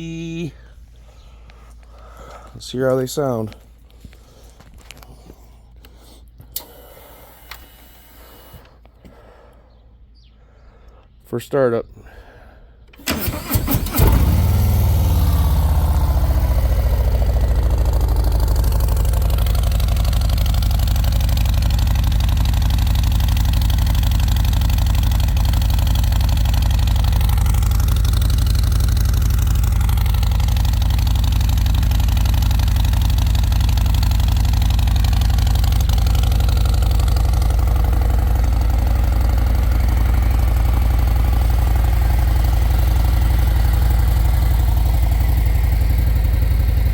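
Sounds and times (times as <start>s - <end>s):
motorcycle starter cranking: 12.9s - 46.9s
motorcycle engine idling: 13.0s - 46.9s.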